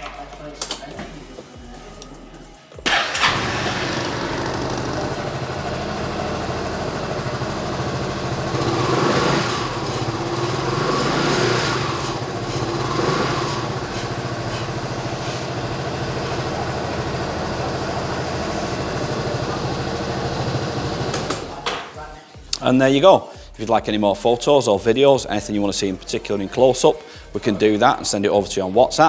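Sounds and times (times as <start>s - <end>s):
scooter engine idling and revving: 2.8s - 21.7s.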